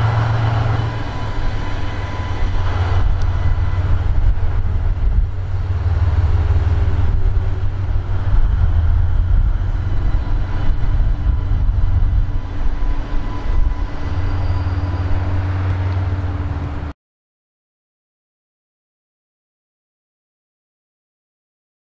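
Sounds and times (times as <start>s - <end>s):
diesel locomotive engine rumble: 0.0s - 17.0s.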